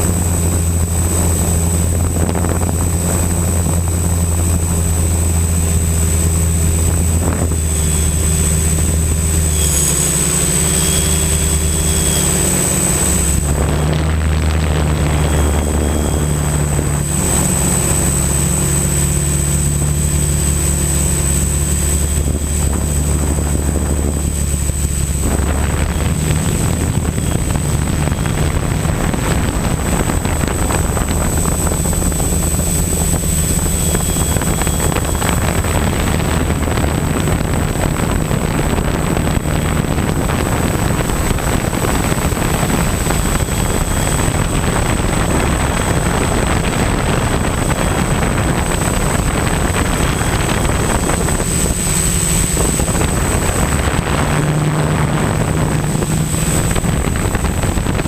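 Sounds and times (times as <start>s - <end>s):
quadcopter propellers droning: 0.0s - 58.0s.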